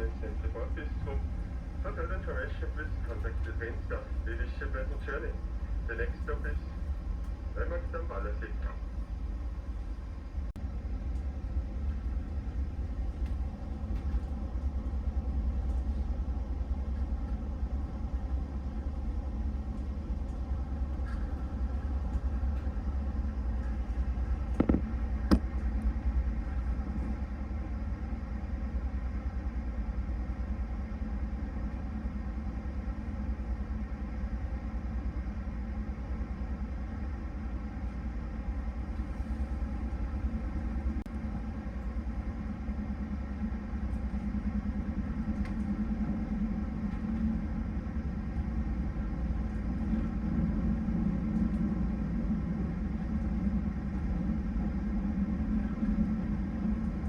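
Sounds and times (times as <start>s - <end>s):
train rumbling at speed: 0.0s - 57.0s
sharp knocks: 24.6s - 25.4s.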